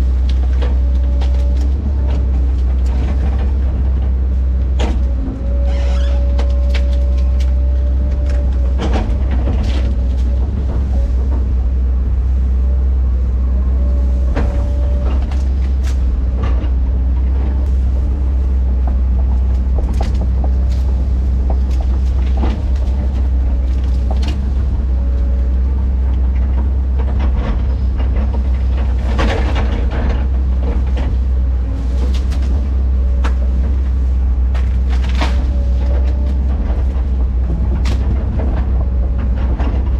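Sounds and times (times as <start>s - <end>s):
diesel machine droning: 0.0s - 39.9s
clanks and knocks: 0.2s - 12.4s, 14.2s - 39.9s.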